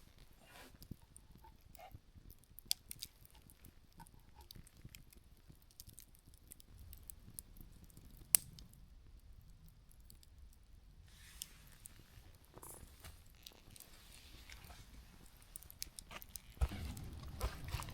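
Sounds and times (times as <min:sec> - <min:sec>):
embers crackling: 0:00.0 - 0:17.9
small ticks: 0:00.8 - 0:08.8.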